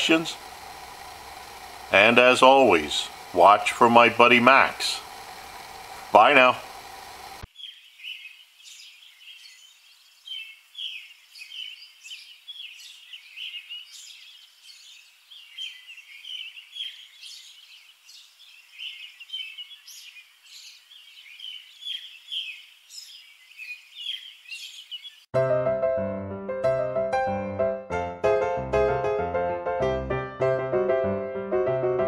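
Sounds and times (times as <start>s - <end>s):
small songbirds chirping: 0.0s - 25.3s.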